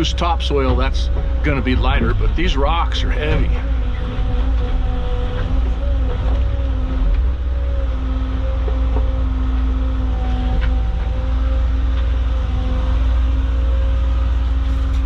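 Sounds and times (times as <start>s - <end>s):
excavator engine and hydraulics: 0.0s - 15.0s.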